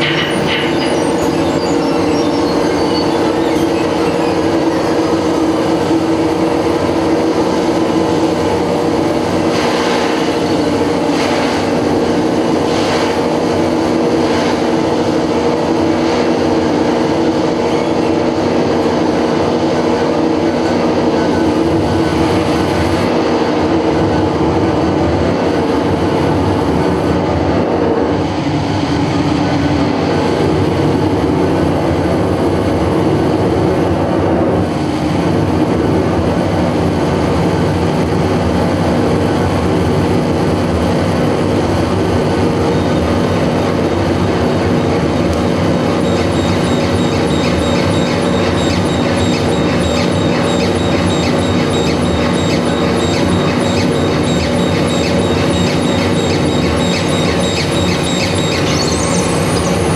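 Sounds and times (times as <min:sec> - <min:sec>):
droning tones: 0:00.0 - 0:14.1, 0:45.3 - 0:59.9
loud wall of noise: 0:00.0 - 0:59.9.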